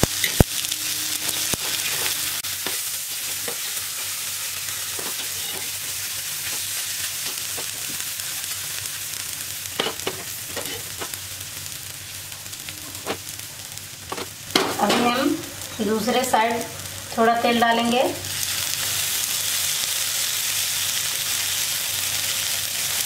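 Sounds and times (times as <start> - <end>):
patties sizzling in oil: 0.0 - 23.0
steel spatula scraping and tapping: 4.9 - 5.8, 9.8 - 11.1.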